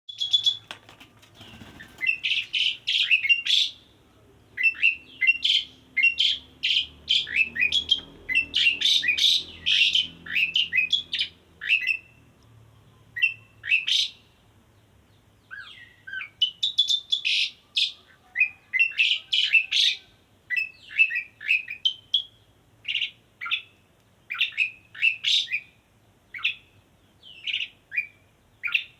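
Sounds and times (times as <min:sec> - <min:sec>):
starling singing: 0:00.1 - 0:12.2, 0:13.0 - 0:14.3, 0:15.5 - 0:23.7.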